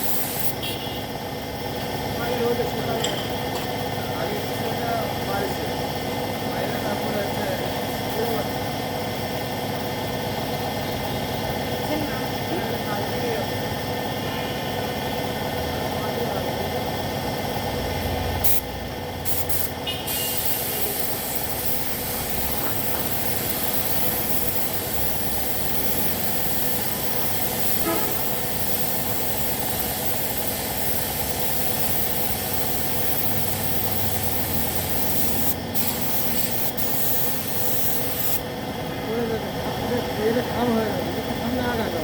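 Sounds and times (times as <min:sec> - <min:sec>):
paint spray gun hissing: 0:00.0 - 0:00.6, 0:18.4 - 0:38.4.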